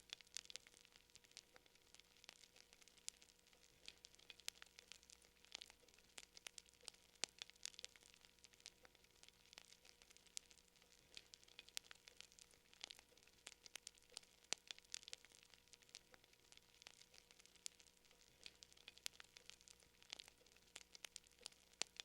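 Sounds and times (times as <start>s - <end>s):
fire crackling: 0.0s - 22.0s.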